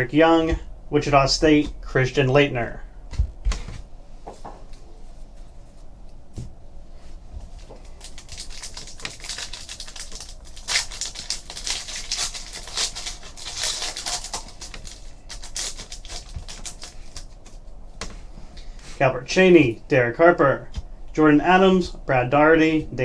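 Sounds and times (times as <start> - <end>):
wrappers crinkling: 7.5 - 17.6.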